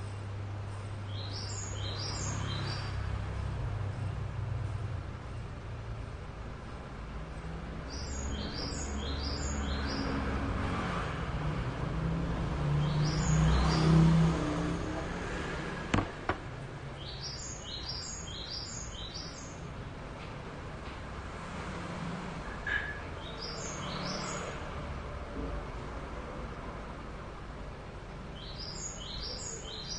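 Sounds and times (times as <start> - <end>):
small bird chirping: 0.7 - 3.0, 7.3 - 10.1, 16.9 - 19.6, 28.4 - 29.9
sharp knocks: 15.9 - 16.5.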